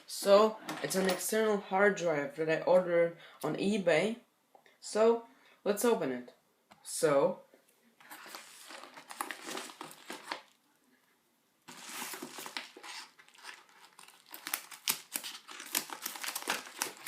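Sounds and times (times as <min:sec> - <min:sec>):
packaging tearing and crinkling: 0:08.2 - 0:10.6, 0:11.7 - 0:17.0.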